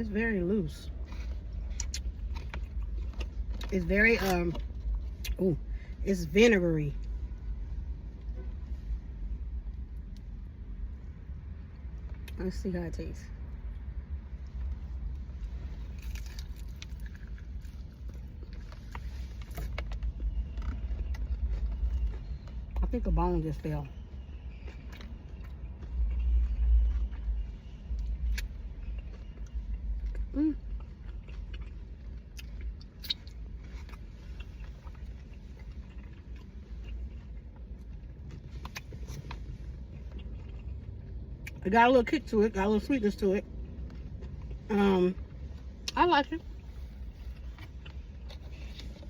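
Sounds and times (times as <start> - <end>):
low rumble: 0.0 - 49.0
person chewing: 0.9 - 5.8, 14.5 - 22.8, 24.3 - 41.6, 46.6 - 49.0
clicks and crackles of handling food: 1.0 - 5.4, 15.4 - 22.8.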